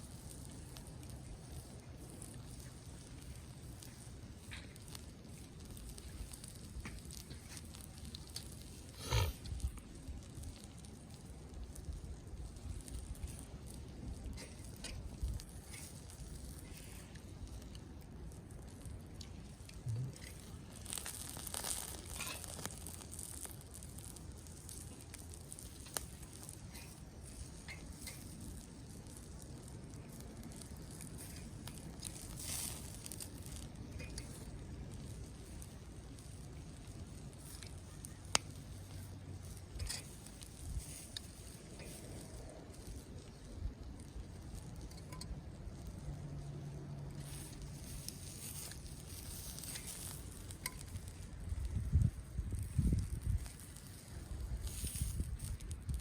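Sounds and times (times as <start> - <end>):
campfire crackling: 0.0 - 56.0
hissing crackle: 0.0 - 56.0.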